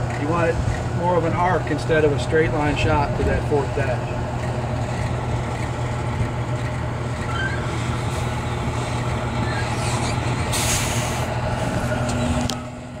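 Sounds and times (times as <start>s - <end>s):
diesel engine idling: 0.0s - 13.0s
air hiss: 10.5s - 11.3s.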